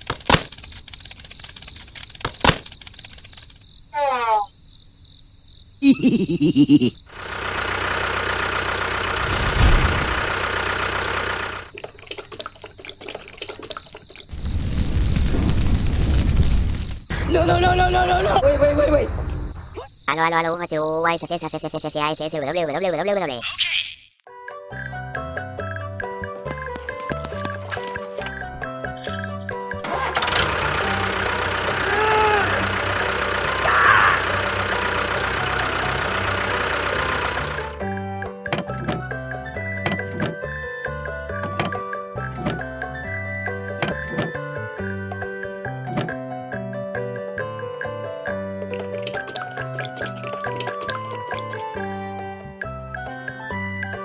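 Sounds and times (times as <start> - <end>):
light irregular clicks: 0.0 - 3.7
small engine rattling: 0.0 - 3.8, 7.0 - 14.6, 26.4 - 46.2, 47.4 - 51.8
small motor running: 7.1 - 11.8, 29.1 - 37.9.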